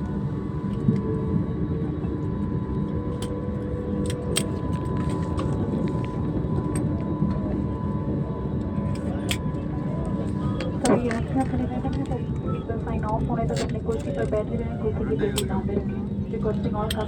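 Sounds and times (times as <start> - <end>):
engine and airflow rumble: 0.0 - 17.0.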